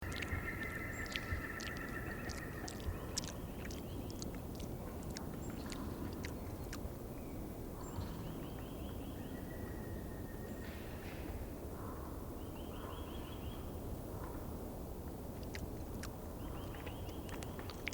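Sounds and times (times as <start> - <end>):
woodpecker tapping: 0.0 - 6.4
outdoor background noise: 0.0 - 17.9.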